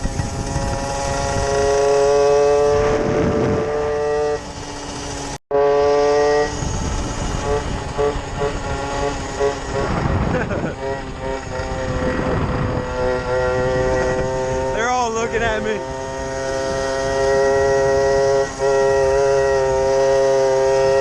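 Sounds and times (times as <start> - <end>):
pit bike engine running: 0.0 - 21.0
wind rumble on microphone: 0.0 - 21.0.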